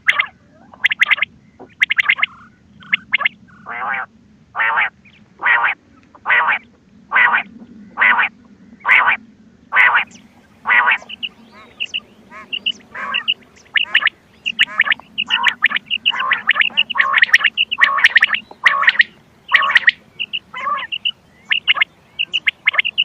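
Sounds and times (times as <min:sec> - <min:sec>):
quail calls: 0:00.0 - 0:23.0.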